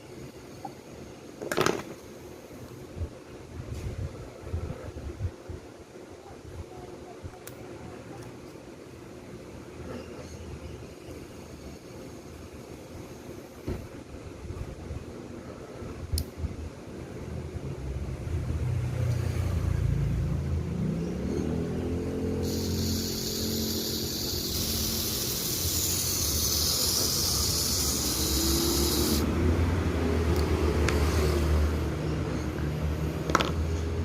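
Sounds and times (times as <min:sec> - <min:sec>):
steady low hum: 0:00.0 - 0:34.0
hiss: 0:11.1 - 0:14.0, 0:22.2 - 0:29.6
toy car motor whirring: 0:22.4 - 0:29.3.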